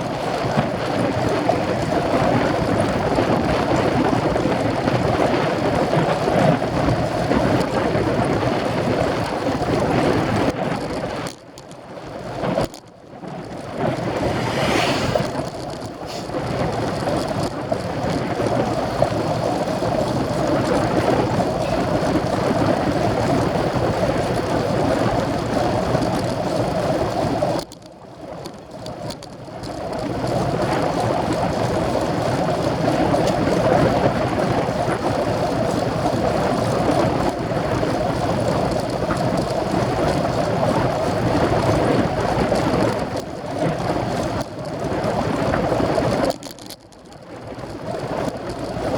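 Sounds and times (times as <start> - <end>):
bike tyres on road: 0.0 - 48.9
wind on microphone: 12.2 - 27.6.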